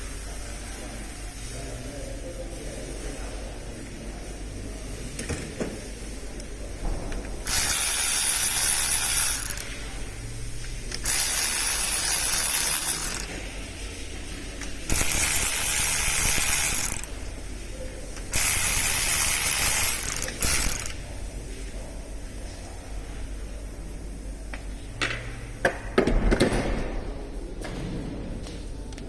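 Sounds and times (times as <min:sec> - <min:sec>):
socket gun running: 0:07.5 - 0:09.7, 0:10.9 - 0:13.3, 0:14.9 - 0:17.2, 0:18.3 - 0:21.0.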